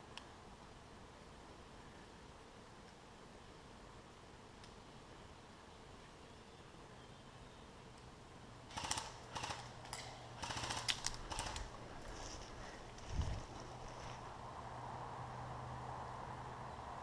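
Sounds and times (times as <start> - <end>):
airsoft gun bursts: 8.7 - 11.8.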